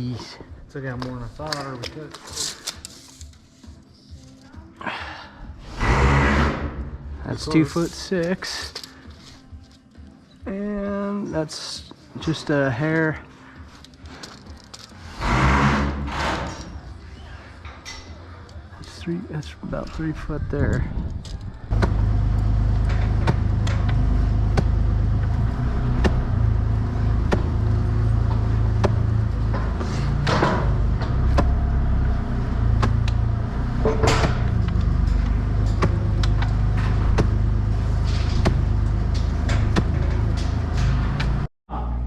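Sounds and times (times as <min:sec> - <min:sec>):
sharp knocks and clanks: 0:21.7 - 0:31.9, 0:32.5 - 0:41.5.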